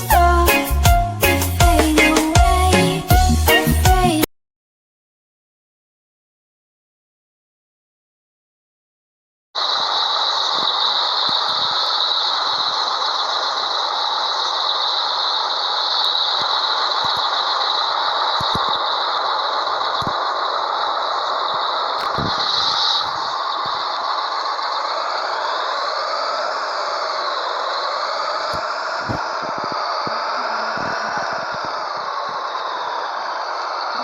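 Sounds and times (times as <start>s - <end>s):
high whine: 9.6s - 34.0s
road noise: 9.6s - 34.0s
truck diesel engine running: 9.6s - 34.0s.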